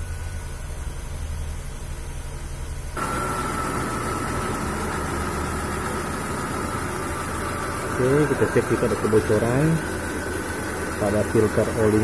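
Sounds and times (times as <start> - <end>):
car engine idling: 0.0 - 12.0
steady whir with high whine: 0.0 - 12.0.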